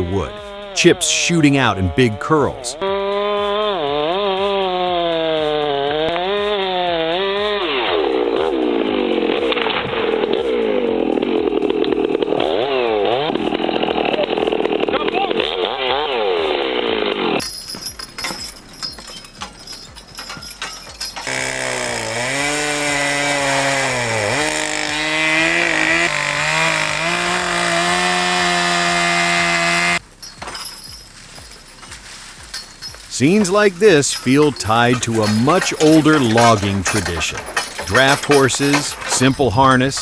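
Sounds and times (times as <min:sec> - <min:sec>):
chainsaw cutting tree: 0:00.0 - 0:30.2, 0:30.8 - 0:40.0
steady engine drone: 0:01.7 - 0:17.4.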